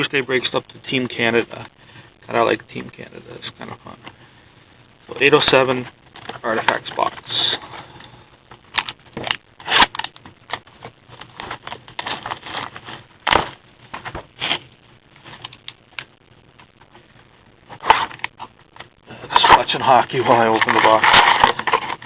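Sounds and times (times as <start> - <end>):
plastic wrap crinkling and tearing: 8.6 - 16.0, 19.3 - 22.0.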